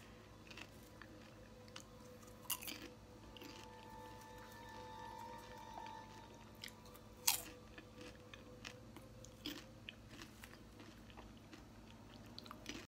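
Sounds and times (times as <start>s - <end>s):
popcorn crunching: 0.0s - 12.9s.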